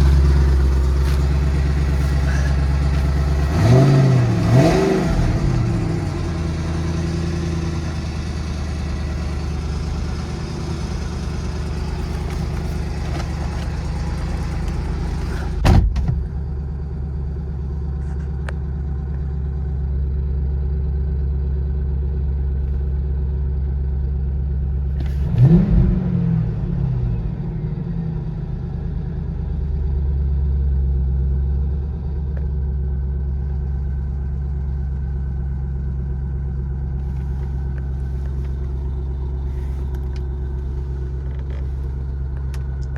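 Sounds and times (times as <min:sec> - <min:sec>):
engine revving: 0:00.0 - 0:15.6, 0:25.0 - 0:26.9
car engine idling: 0:00.0 - 0:25.6, 0:27.2 - 0:42.9.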